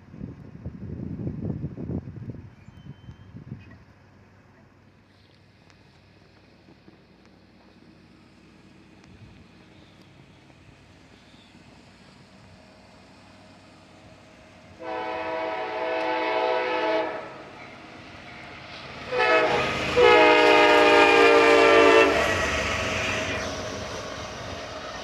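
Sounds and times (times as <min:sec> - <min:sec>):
train rumble: 0:00.0 - 0:25.0
locomotive air horn blasts: 0:14.8 - 0:17.6, 0:19.1 - 0:22.6.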